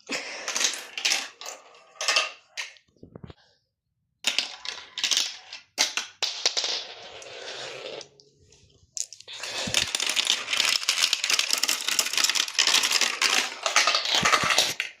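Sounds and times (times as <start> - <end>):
marbles clattering down a run: 9.0 - 15.0.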